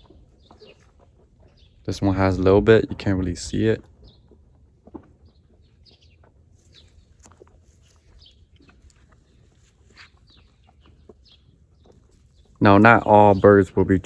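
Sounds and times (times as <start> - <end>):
faint bird chirps and clucks: 0.0 - 1.9, 3.8 - 12.6.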